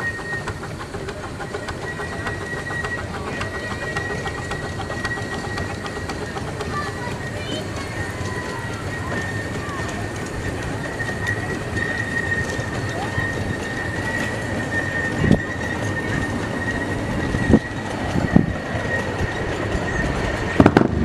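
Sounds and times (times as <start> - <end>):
train cars rumbling: 0.0 - 21.0
train wheels squealing: 0.0 - 21.0.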